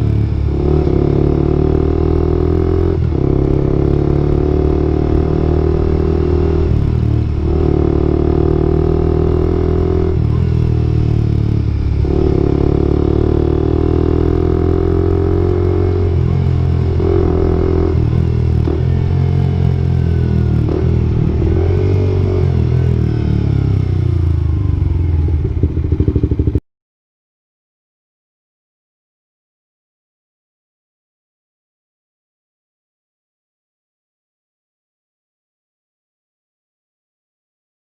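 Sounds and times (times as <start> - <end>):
motorcycle engine running: 0.0 - 26.6.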